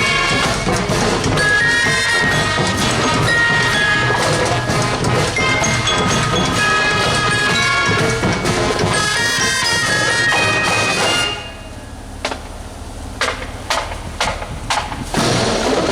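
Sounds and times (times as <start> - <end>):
marching band playing: 0.0 - 15.9
sharp taps: 12.2 - 12.6, 13.2 - 15.2.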